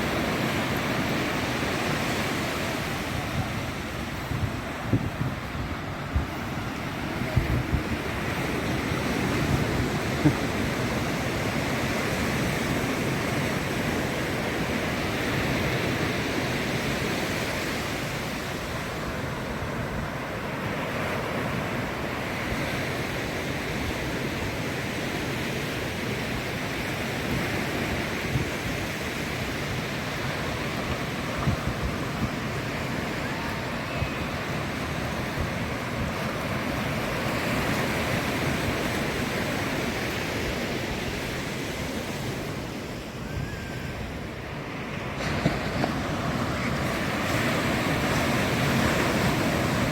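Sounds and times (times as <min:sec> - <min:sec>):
wind buffeting microphone: 0:00.0 - 0:21.4, 0:27.2 - 0:44.4
ocean surf breaking: 0:00.0 - 0:49.9.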